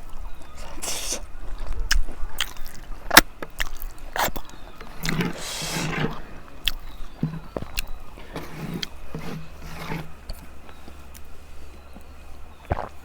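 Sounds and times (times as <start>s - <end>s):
person chewing: 0.5s - 8.9s
wet slurp: 0.6s - 2.6s, 3.6s - 7.6s
lip smacks and mouth clicks: 0.6s - 4.6s.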